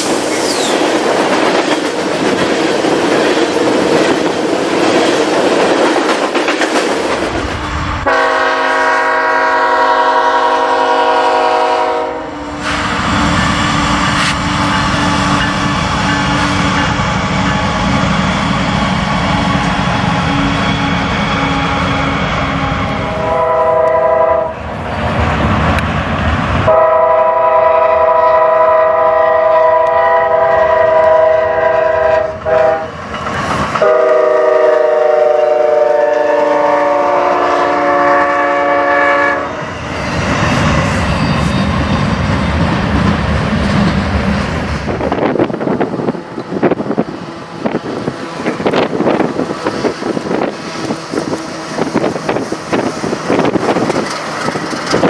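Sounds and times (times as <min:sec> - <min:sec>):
train wheels clacking on rails: 0:00.0 - 0:08.4, 0:12.6 - 0:21.1, 0:30.8 - 0:37.5, 0:39.6 - 0:55.0
locomotive air horn blasts: 0:08.0 - 0:12.8, 0:20.2 - 0:24.6, 0:26.7 - 0:32.9, 0:33.8 - 0:39.5.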